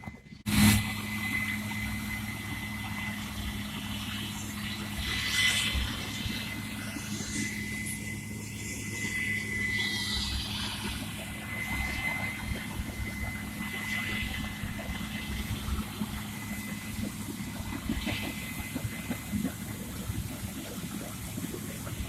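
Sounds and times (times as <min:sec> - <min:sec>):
farm machinery engine running: 0:00.0 - 0:22.0.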